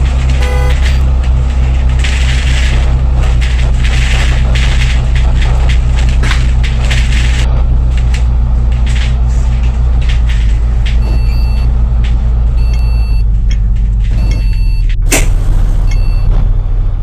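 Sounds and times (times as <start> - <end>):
bodywork rattles and clicks: 0.0 - 16.4
bus diesel engine running: 0.0 - 17.0
short high beep: 0.4 - 1.0.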